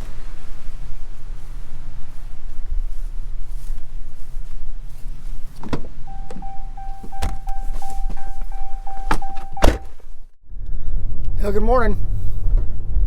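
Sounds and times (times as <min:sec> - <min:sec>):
low steady rumble: 0:00.0 - 0:13.0
vehicle warning chime beeping: 0:06.0 - 0:10.0.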